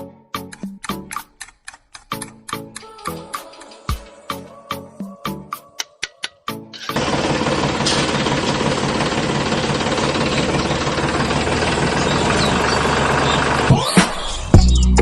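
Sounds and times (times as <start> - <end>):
engine with knocking rattle: 7.0 - 13.8.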